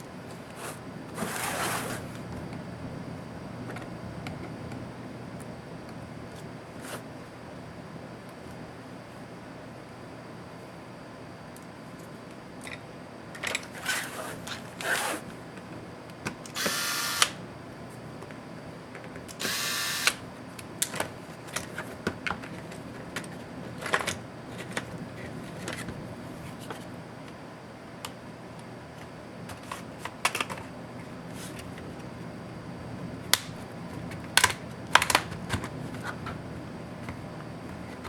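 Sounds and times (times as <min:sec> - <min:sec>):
electric screwdriver whirring: 0:16.5 - 0:17.4, 0:19.3 - 0:20.2.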